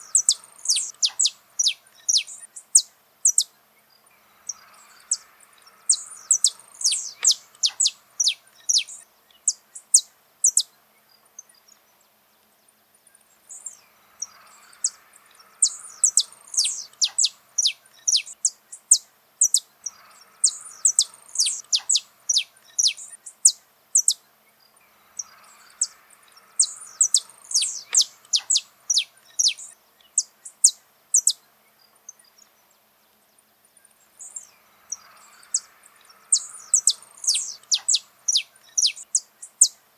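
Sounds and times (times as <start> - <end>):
finch singing sharp high notes: 0.0 - 2.7, 4.2 - 10.6, 13.5 - 18.6, 19.4 - 24.2, 25.0 - 31.3, 34.2 - 39.8.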